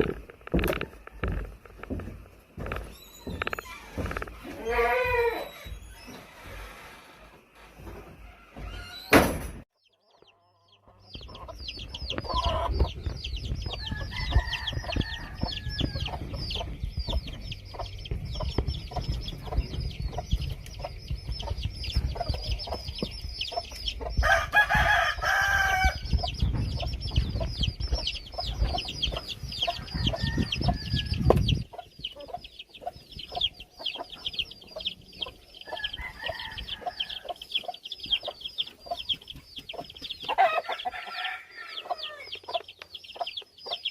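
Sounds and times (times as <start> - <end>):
chickens clucking: 0.0 - 9.2, 9.8 - 43.9
rooster crowing: 13.8 - 16.2, 24.2 - 26.0, 29.7 - 31.3, 35.6 - 37.4, 40.4 - 42.3.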